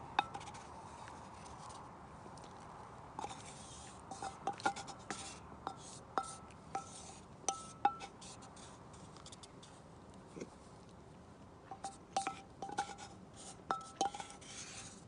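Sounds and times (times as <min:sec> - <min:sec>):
utensil clinking against a bowl: 0:05.7 - 0:08.2, 0:11.7 - 0:13.0, 0:13.6 - 0:14.4.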